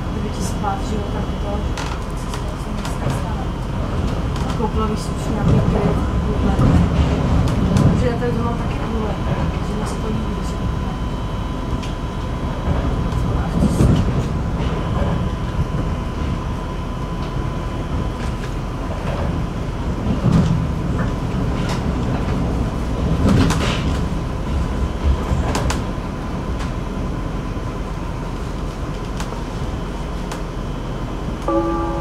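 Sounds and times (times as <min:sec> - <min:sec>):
train wheels rumbling on rails: 0:00.0 - 0:32.0
thin high tone: 0:31.5 - 0:32.0.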